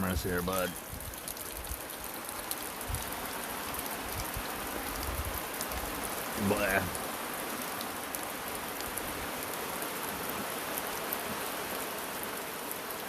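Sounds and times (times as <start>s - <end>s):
steady rain falling: 0.0s - 13.0s
water drips ticking: 0.5s - 9.6s.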